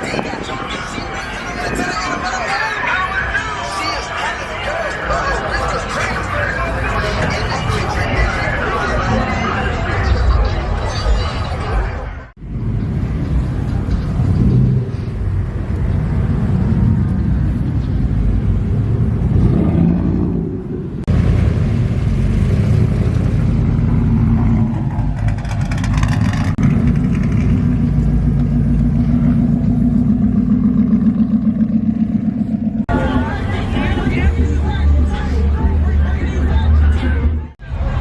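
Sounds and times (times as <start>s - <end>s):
car engine revving: 12.4s - 37.5s.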